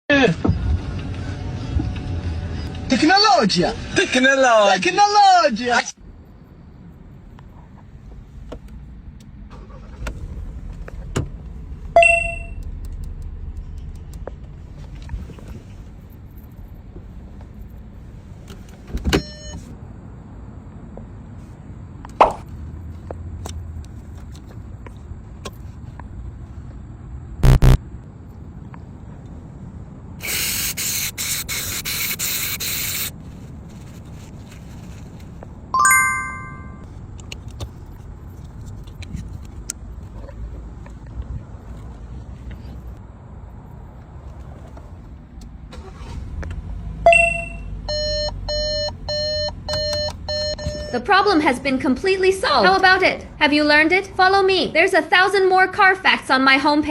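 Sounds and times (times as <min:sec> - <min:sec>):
low steady rumble: 0:06.0 - 0:21.9
car chime ding: 0:12.0 - 0:12.6, 0:35.8 - 0:36.8, 0:47.1 - 0:51.0
short loud beeps: 0:12.0 - 0:12.6, 0:27.4 - 0:27.8, 0:47.1 - 0:51.0
electronic beeps: 0:27.4 - 0:27.8.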